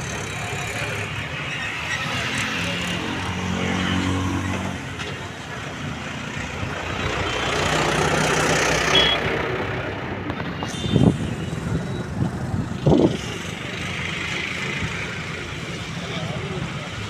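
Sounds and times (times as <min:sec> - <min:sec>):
engine running: 0:00.0 - 0:17.0
passing vehicle rush: 0:00.0 - 0:17.0
high beeps: 0:08.9 - 0:09.3.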